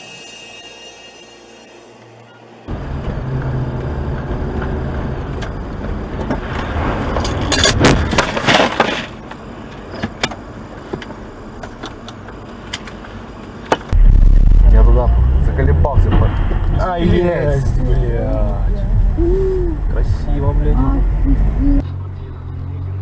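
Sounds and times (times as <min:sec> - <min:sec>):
car road and engine noise: 0:01.9 - 0:23.0
loud sharp bangs: 0:14.0 - 0:17.3.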